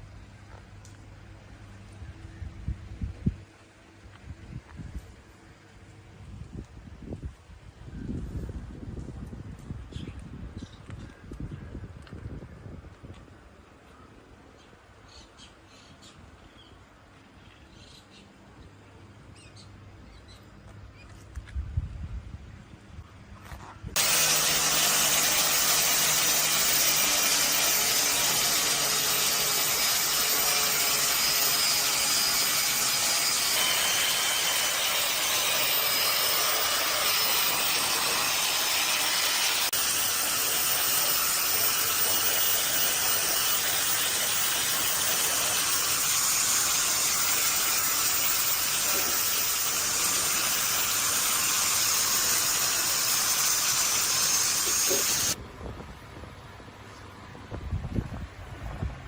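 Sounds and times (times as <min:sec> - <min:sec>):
loud spray hiss: 0:32.4 - 0:55.4.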